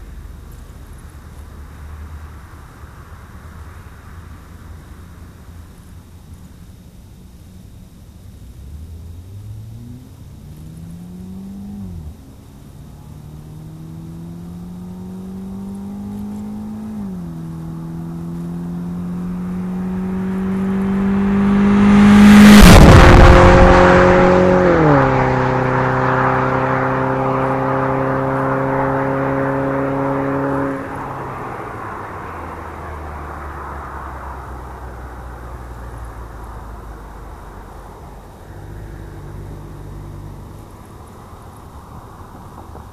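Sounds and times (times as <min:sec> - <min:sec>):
car engine accelerating past: 0:08.6 - 0:42.9.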